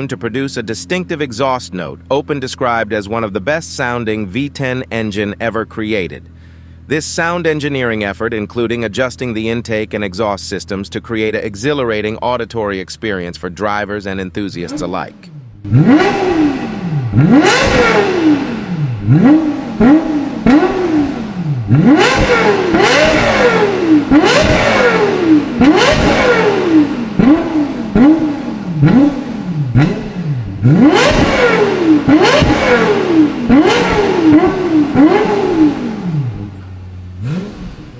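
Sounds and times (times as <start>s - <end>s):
car engine revving: 14.4s - 37.9s.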